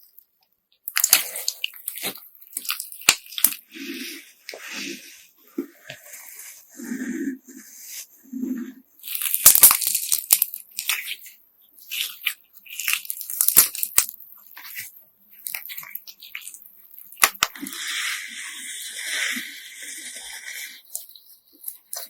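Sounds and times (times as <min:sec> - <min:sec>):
slime squishing: 0:00.8 - 0:22.0
crunchy slime squeezed by hand: 0:09.0 - 0:17.8.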